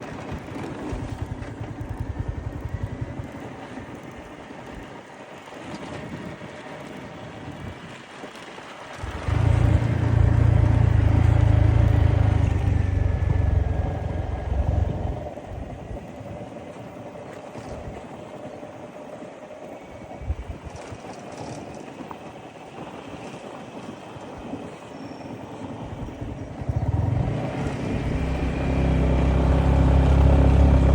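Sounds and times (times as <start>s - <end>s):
motorcycle engine rumbling: 0.9s - 3.3s, 9.0s - 16.0s, 26.0s - 30.9s.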